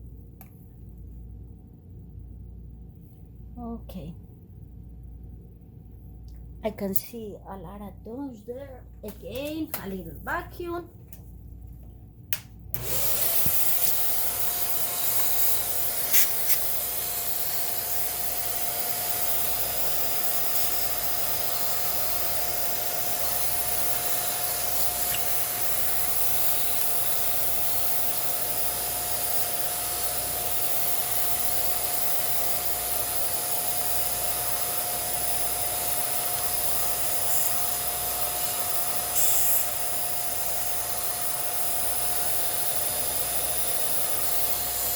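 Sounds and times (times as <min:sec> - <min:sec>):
vacuum cleaner motor whine: 0:12.8 - 0:44.9.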